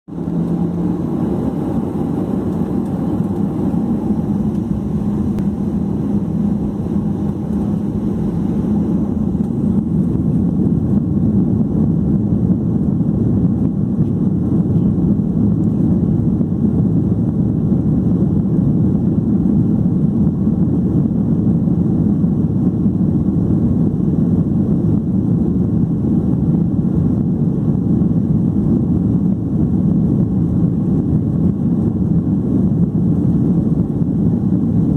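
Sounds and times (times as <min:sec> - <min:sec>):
jet engine cabin rumble: 0:00.1 - 0:34.9.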